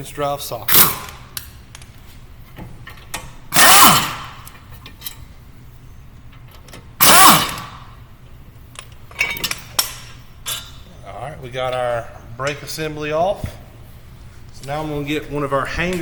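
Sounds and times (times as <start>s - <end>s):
pneumatic impact wrench bursts: 0.7s - 1.4s, 3.5s - 4.5s, 7.0s - 8.0s
tool spinning down whine: 3.6s - 4.4s, 7.0s - 7.8s.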